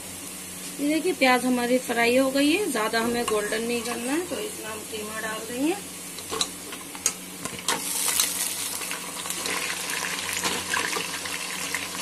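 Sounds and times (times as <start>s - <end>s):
meat sizzling in oil: 7.4s - 12.0s.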